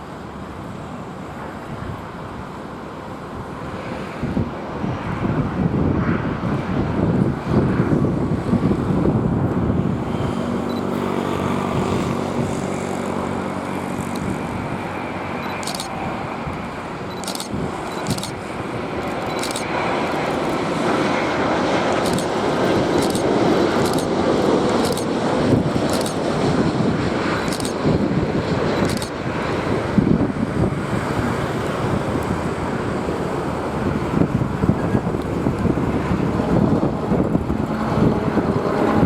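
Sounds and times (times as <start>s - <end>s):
jet engines running: 0.0s - 39.0s
short clicks: 15.4s - 16.0s, 17.1s - 18.4s, 19.0s - 20.6s, 22.0s - 22.4s, 23.0s - 24.1s, 24.8s - 25.1s, 25.7s - 26.2s, 27.5s - 27.8s, 28.8s - 29.2s.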